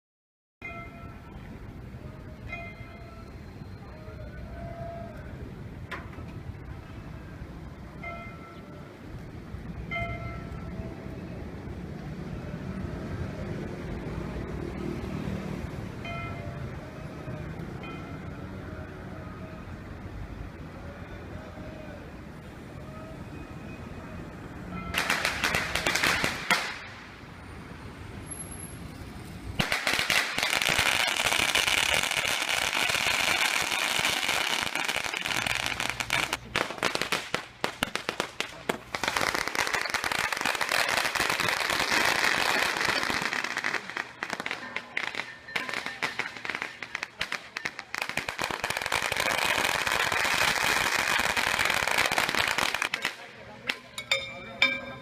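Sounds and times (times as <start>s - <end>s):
firecrackers crackling: 24.9s - 27.4s, 29.5s - 54.4s.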